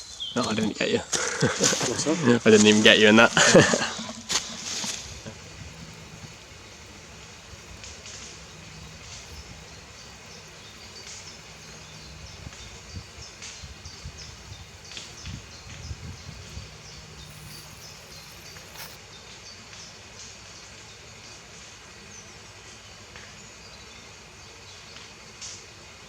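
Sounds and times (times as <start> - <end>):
birds chirping faintly: 2.8 - 19.0
bonfire crackling and popping: 3.2 - 19.0.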